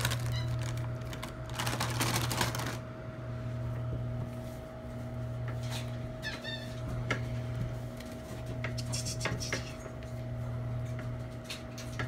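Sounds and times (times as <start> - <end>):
small items rustling and clicking: 0.0 - 2.8
steady low hum: 0.0 - 12.0.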